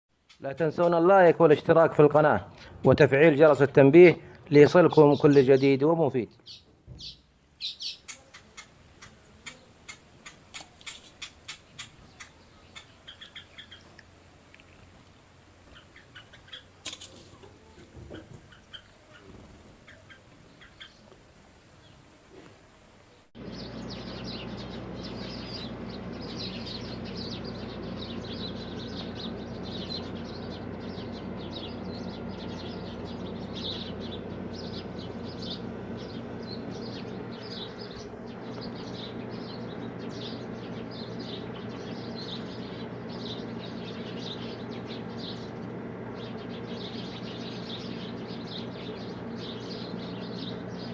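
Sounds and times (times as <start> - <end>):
small birds chirping: 0.2 - 50.9
steady low hum: 0.6 - 5.8, 23.4 - 50.9.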